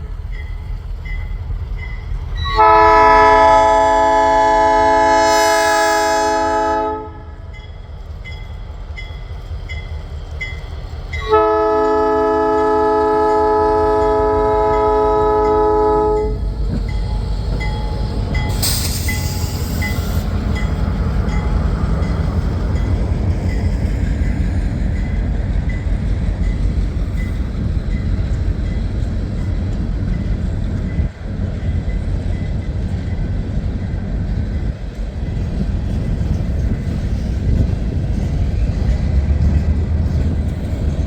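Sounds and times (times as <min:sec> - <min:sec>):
locomotive air horn blasts: 0:02.4 - 0:07.5, 0:11.2 - 0:16.4
locomotives rumbling past: 0:07.2 - 0:41.0
brief hiss: 0:18.5 - 0:20.3.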